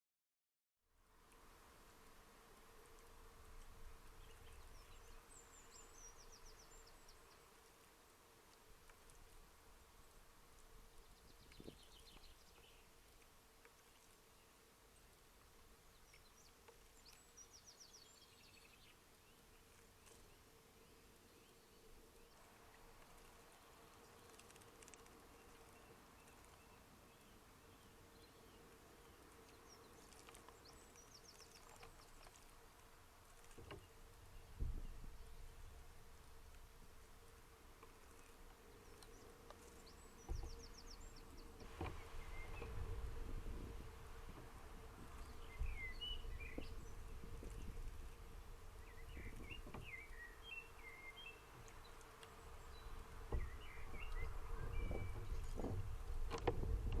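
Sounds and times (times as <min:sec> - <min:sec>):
faint steady hum: 0:00.9 - 0:57.0
distant small birds chirping: 0:01.0 - 0:57.0
low outdoor rumble: 0:19.4 - 0:57.0.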